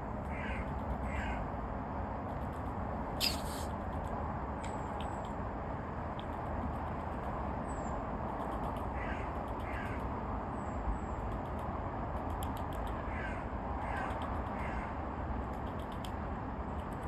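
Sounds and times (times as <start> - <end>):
harsh rasping bird calls: 3.2 - 3.7
thin high small bird calls: 3.2 - 3.7.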